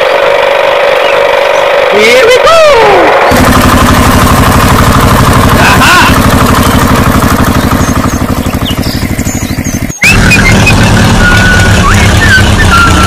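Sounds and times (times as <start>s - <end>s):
tractor engine putt-putt: 3.1s - 13.0s.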